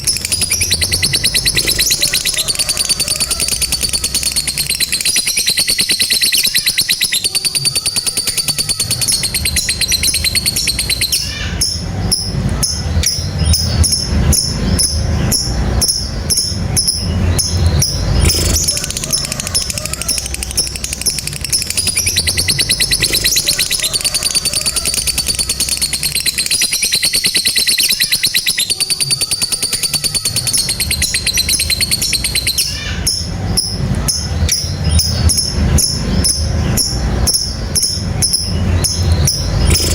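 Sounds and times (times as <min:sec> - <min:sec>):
lovebird chattering trill: 0:00.0 - 0:39.9
low rumble: 0:09.0 - 0:26.5, 0:30.9 - 0:39.9.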